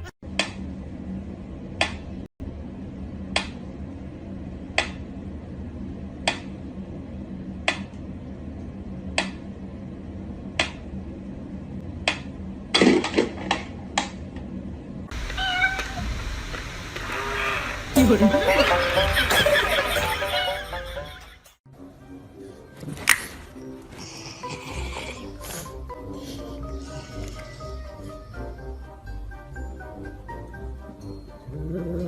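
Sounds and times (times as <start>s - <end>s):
steady low hum: 0.2s - 12.8s.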